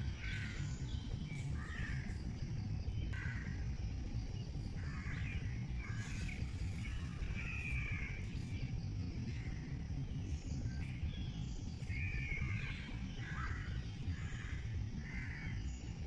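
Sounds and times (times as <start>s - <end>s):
steady low rumble: 0.0s - 16.0s
birds cawing: 3.1s - 3.6s, 4.8s - 8.4s, 11.9s - 15.8s.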